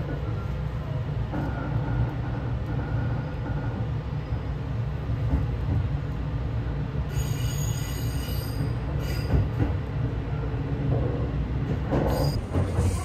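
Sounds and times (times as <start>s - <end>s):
train wheels rumbling on rails: 0.0s - 13.0s
high wheel squeal: 7.1s - 9.4s, 12.1s - 13.0s.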